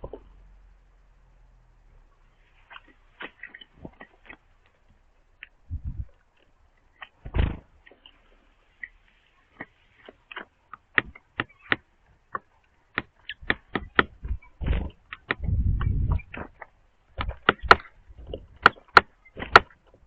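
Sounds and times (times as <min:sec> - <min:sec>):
birds pecking on wood: 0:02.2 - 0:20.0
dull thump: 0:07.2 - 0:07.7.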